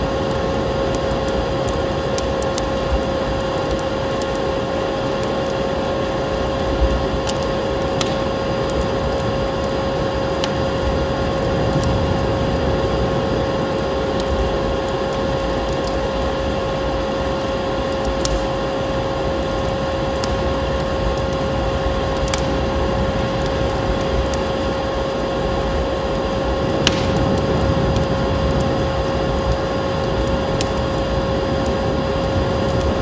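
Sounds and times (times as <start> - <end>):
blizzard wind roaring: 0.0 - 33.0
constant hum: 0.0 - 33.0
wood fire crackling and popping: 0.0 - 33.0.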